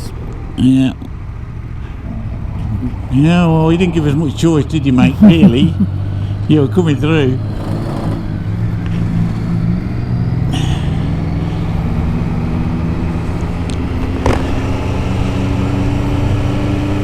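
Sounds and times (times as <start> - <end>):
motorcycle engine cruising: 0.0 - 17.0
road and wind noise: 0.0 - 17.0.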